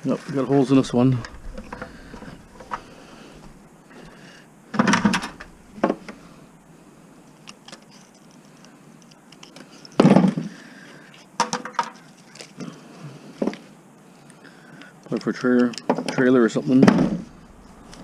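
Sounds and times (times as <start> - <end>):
objects knocking and clattering: 0.9 - 3.6, 4.7 - 6.2.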